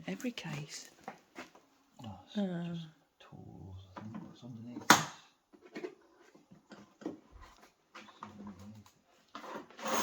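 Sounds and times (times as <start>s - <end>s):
household objects rustling: 0.0s - 1.9s, 3.9s - 10.0s.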